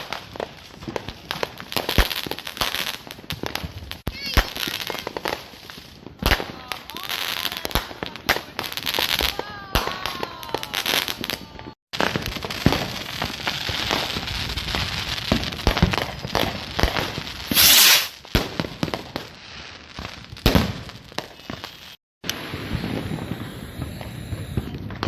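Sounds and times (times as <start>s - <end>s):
fireworks crackling and popping: 0.0s - 25.0s
loud hissing firework burst: 17.4s - 18.2s, 22.3s - 25.0s.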